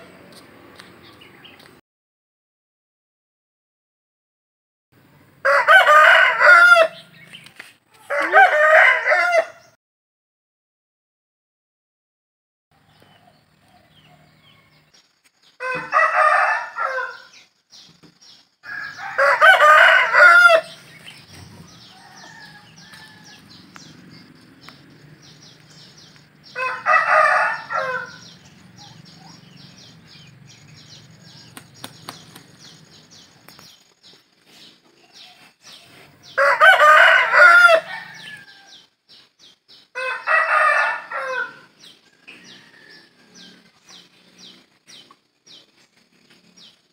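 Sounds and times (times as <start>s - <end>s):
rooster crowing: 5.4s - 7.1s, 8.1s - 9.7s, 15.6s - 17.4s, 18.6s - 20.8s, 21.6s - 23.9s, 25.3s - 28.4s, 36.2s - 38.8s, 40.0s - 43.8s.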